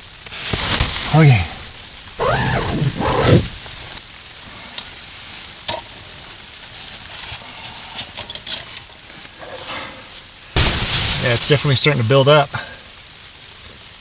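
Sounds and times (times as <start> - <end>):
falling snow hiss: 0.3 - 4.0, 10.6 - 12.9.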